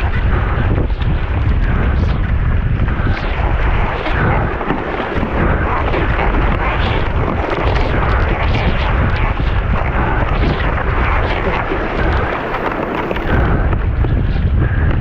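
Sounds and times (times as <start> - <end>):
wind buffeting microphone: 0.0 - 15.0
water rushing: 3.9 - 8.0.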